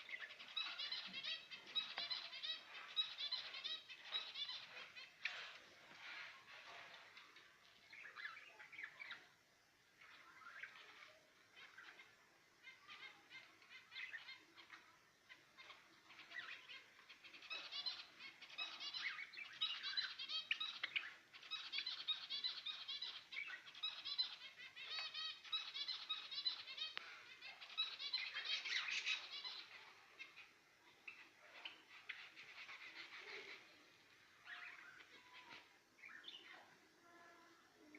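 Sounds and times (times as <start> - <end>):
budgerigars chattering: 0.0 - 6.2, 15.3 - 33.7.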